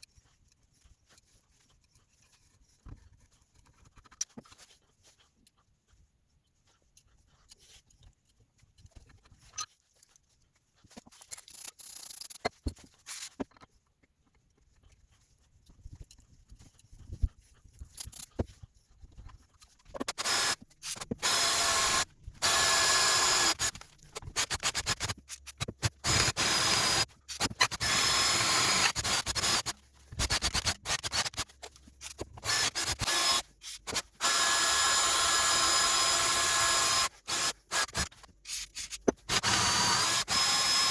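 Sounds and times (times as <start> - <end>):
power tool grinding metal: 39.3 - 40.9.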